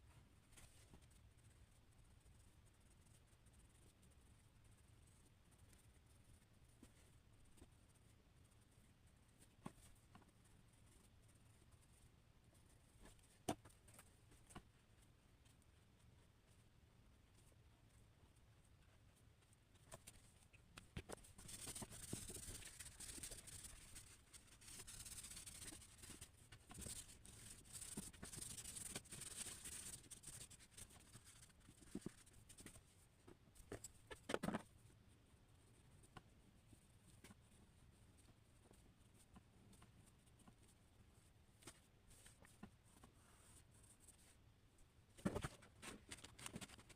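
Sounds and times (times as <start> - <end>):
drawing tool scratching paper: 21.4 - 32.3.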